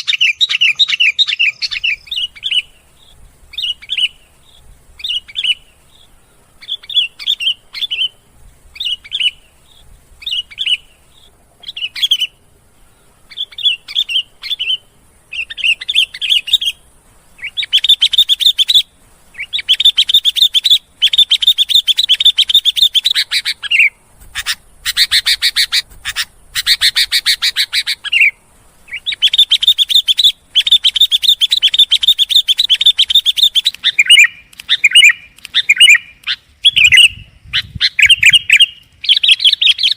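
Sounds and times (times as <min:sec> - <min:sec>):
bulbul singing and chattering: 0:00.0 - 0:39.9.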